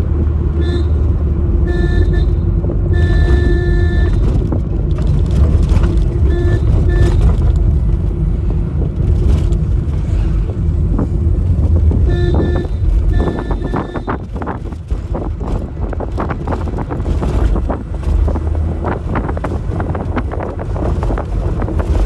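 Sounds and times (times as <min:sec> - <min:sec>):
car engine rumble: 0:00.0 - 0:22.0
car horn honks: 0:00.4 - 0:04.4, 0:06.1 - 0:07.5, 0:11.9 - 0:14.4.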